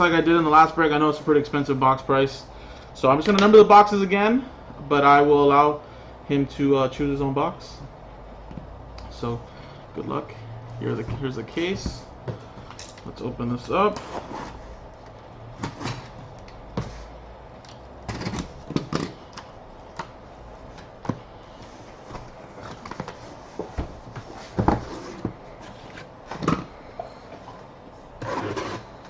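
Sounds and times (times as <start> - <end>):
cardboard knocks and scrapes: 22.9 - 26.6.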